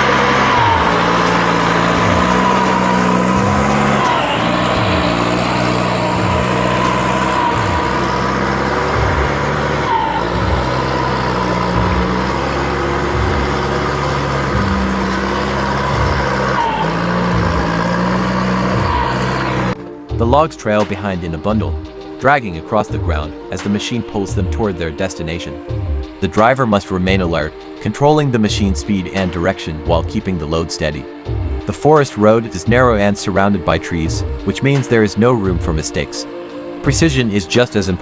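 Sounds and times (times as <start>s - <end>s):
diesel engine running under load: 0.0s - 20.0s, 32.7s - 38.0s.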